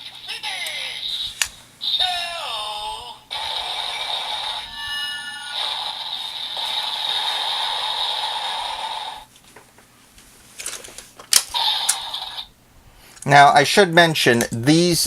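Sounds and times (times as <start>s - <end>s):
toy speaker hissing sound effect: 5.4s - 9.3s, 11.5s - 12.5s.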